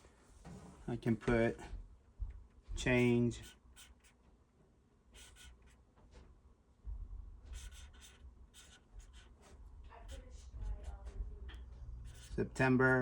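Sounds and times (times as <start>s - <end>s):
scratchy pen strokes: 2.9s - 4.2s, 5.1s - 5.8s, 7.5s - 12.8s.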